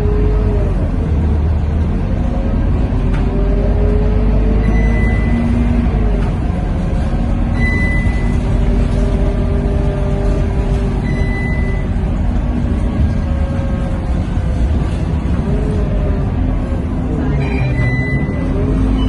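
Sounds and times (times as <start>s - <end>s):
bus diesel engine rumble: 0.0s - 19.0s
short high beep: 11.0s - 11.8s, 17.4s - 19.0s.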